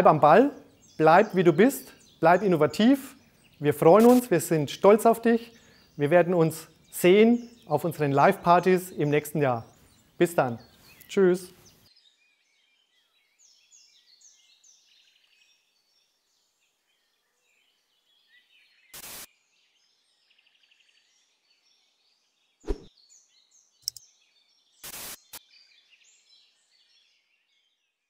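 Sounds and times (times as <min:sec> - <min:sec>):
birds chirping: 0:00.0 - 0:18.8.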